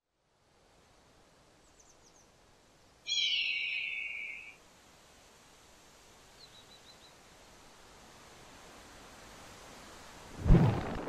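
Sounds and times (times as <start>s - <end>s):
bird's harsh cry: 3.1s - 4.6s
faint high chirps: 3.1s - 4.6s.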